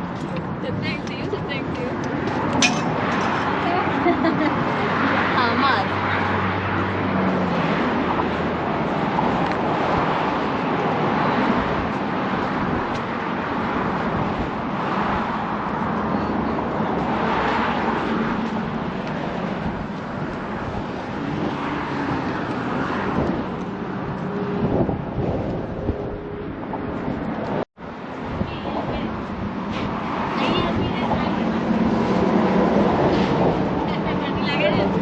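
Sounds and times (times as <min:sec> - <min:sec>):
road traffic rush: 0:00.0 - 0:35.0
wind: 0:00.0 - 0:35.0.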